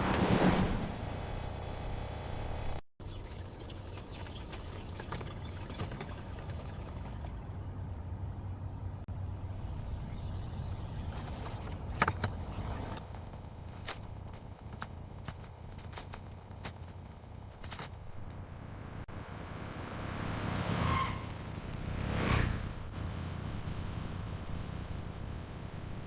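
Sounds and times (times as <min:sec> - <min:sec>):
machinery rumble: 0:22.6 - 0:26.0.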